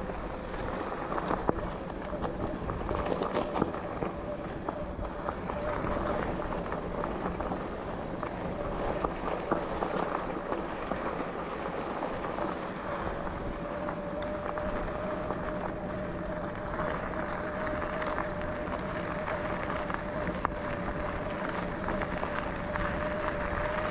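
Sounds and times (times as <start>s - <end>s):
bicycle tyres rolling on rough trail: 0.0s - 23.9s
thin steady whine: 0.0s - 23.9s.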